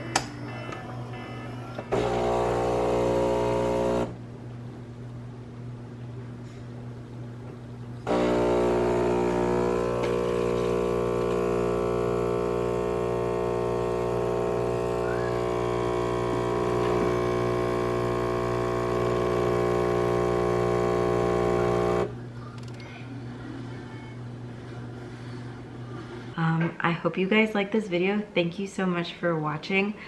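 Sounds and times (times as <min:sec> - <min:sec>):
espresso machine pump humming: 0:01.8 - 0:04.2, 0:08.0 - 0:22.2.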